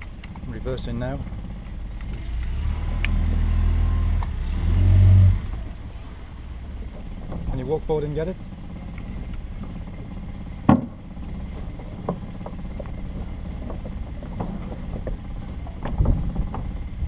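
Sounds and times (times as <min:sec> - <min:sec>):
boat engine idling: 0:00.0 - 0:17.0
dull thump: 0:10.6 - 0:16.8.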